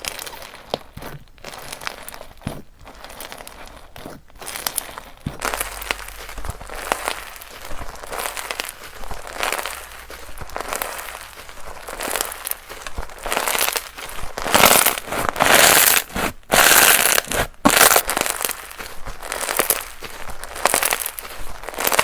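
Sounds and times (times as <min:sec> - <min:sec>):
slime crackling by hand: 0:00.0 - 0:22.0.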